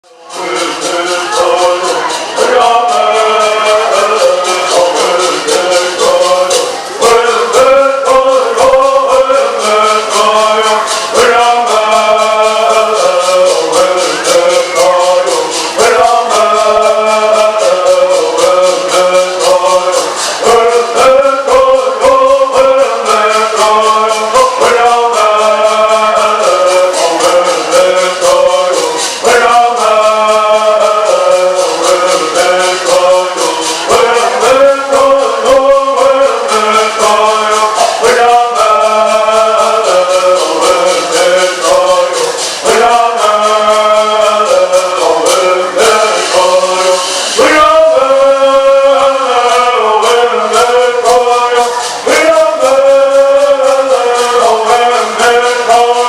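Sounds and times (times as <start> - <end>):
men singing in unison: 0.0 - 56.0
gourd rattles shaking: 0.3 - 56.0.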